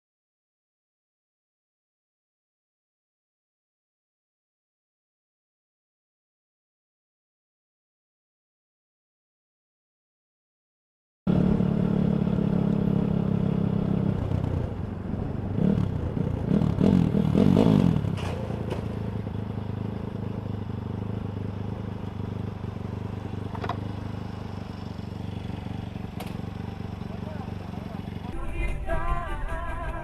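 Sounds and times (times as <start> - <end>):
vehicle engine and road noise: 11.3 - 30.0
clatter and scraping: 18.0 - 19.2.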